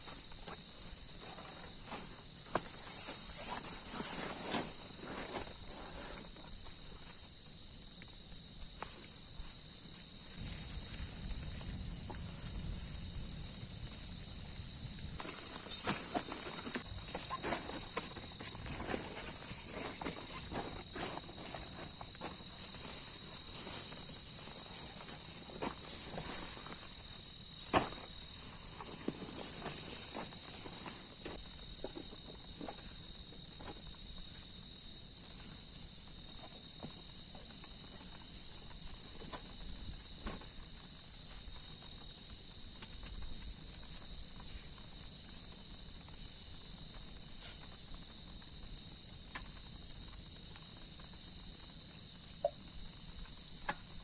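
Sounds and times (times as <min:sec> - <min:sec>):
camping gear knocks and rustles: 0:00.0 - 0:07.4, 0:15.1 - 0:42.1
crickets chirping: 0:00.0 - 0:54.0.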